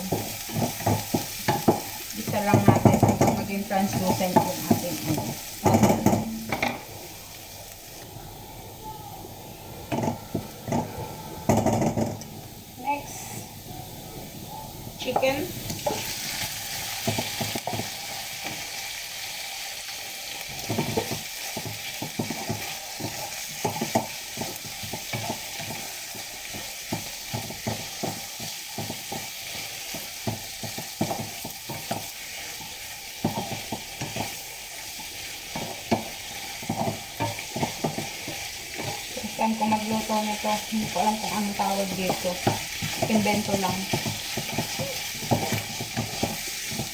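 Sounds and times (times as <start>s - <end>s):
chicken sizzling in a pan: 0.0s - 46.9s
spatula scraping a pan: 15.0s - 18.8s, 20.5s - 46.9s.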